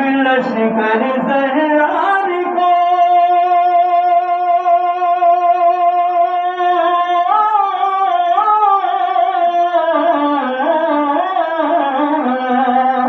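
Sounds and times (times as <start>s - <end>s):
person singing wordless melody: 0.0s - 13.0s.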